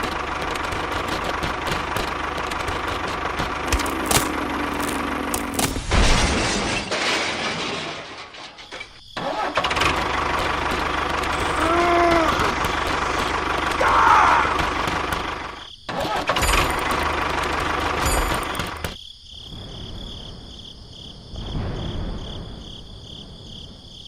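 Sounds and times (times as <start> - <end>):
small engine running: 0.0 - 5.8, 9.6 - 15.6, 16.3 - 18.9.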